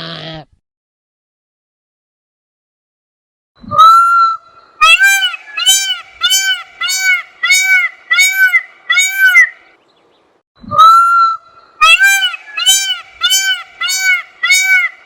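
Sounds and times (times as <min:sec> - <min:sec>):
bird arched calls: 0:03.8 - 0:10.1, 0:10.9 - 0:15.0.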